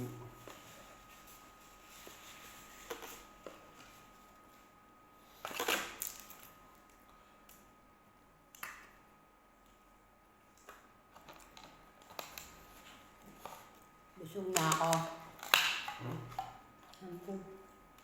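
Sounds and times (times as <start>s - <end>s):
faint steady high hum: 0.0s - 18.0s
rustling of things handled: 0.3s - 7.0s.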